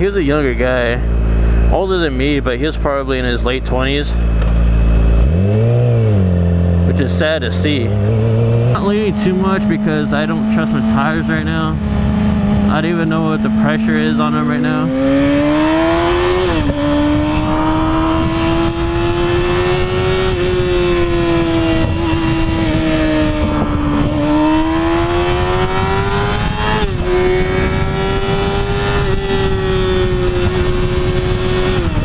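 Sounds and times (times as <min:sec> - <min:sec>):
motorcycle engine pulling: 0:03.0 - 0:32.0
wind rushing on microphone: 0:07.8 - 0:32.0.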